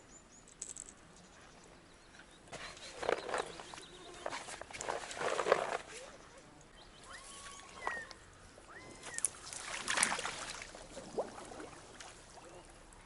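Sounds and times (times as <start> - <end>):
water splashing and sloshing: 2.6 - 6.3, 7.3 - 13.0
faint thin whistles: 7.0 - 9.4.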